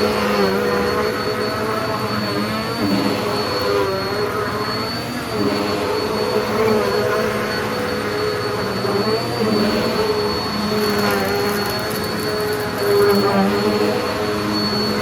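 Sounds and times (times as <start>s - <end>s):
vacuum cleaner running on rug: 0.0s - 15.0s.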